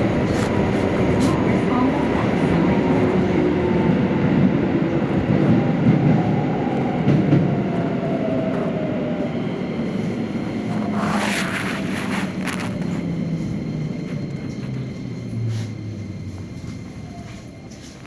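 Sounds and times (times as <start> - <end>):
train wheels rumbling on track: 0.0 - 18.0.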